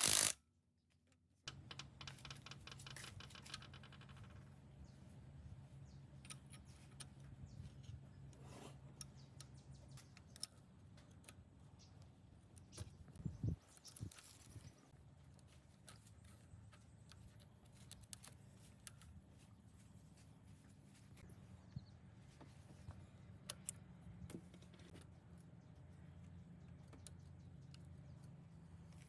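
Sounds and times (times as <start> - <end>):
faint clicks and rattling: 1.4 - 4.6.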